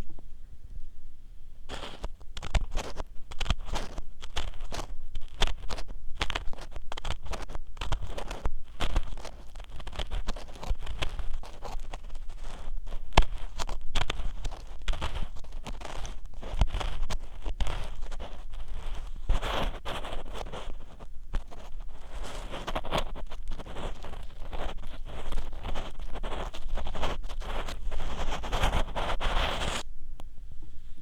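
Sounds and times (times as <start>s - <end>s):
ear pick scraping close to microphone: 1.7s - 29.8s.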